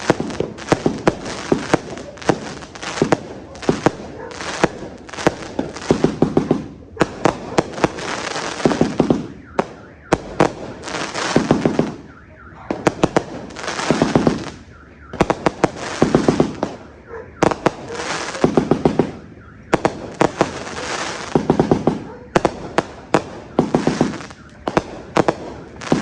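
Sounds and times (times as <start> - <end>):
fireworks hissing crackle: 0.0 - 9.4, 10.6 - 12.1, 13.2 - 14.7, 15.5 - 16.8, 20.0 - 24.4, 25.0 - 26.0
fireworks bangs: 0.0 - 26.0.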